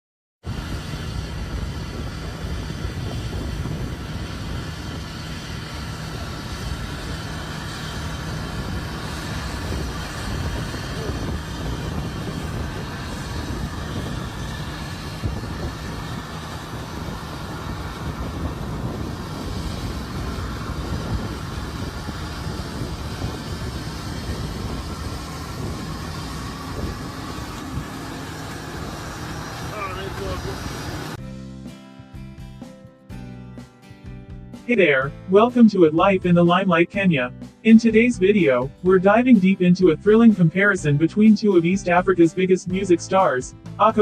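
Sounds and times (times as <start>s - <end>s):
jet aircraft rumble and hiss: 0.5s - 31.2s, 34.8s - 44.0s.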